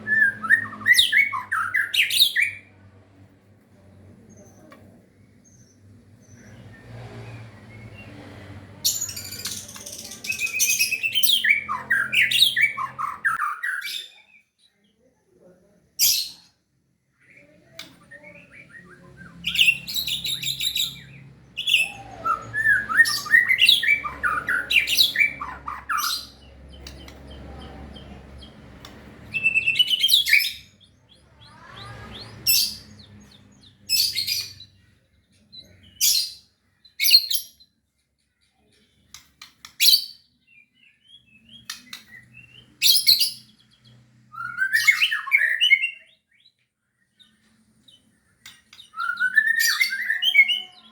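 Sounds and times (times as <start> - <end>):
bird singing chirps and trills: 8.8 - 14.9, 17.2 - 50.9.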